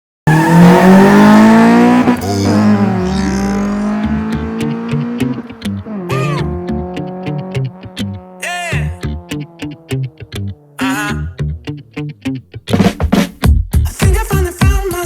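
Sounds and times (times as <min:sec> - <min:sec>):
car engine revving: 0:00.3 - 0:12.2
electronic music with steady beat: 0:13.4 - 0:15.0.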